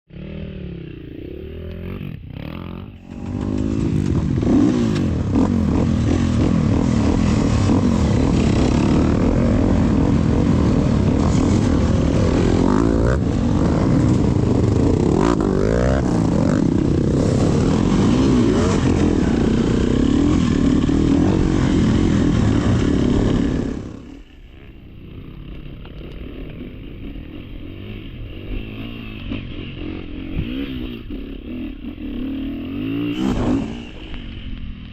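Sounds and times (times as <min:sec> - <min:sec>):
motorcycle engine revving: 0:00.1 - 0:34.9.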